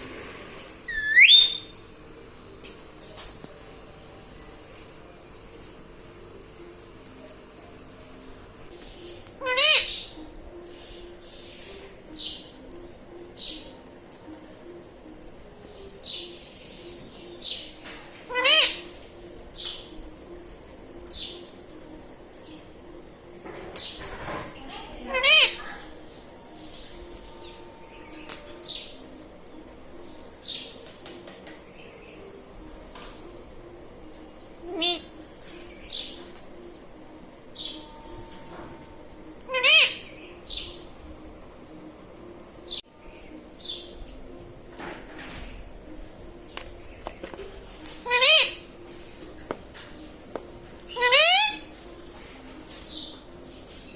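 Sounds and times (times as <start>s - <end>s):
parrot calling: 0.9s - 1.7s, 9.4s - 10.2s, 18.2s - 18.9s, 25.0s - 25.8s, 34.6s - 35.2s, 39.4s - 40.3s, 48.0s - 48.7s, 50.8s - 51.8s.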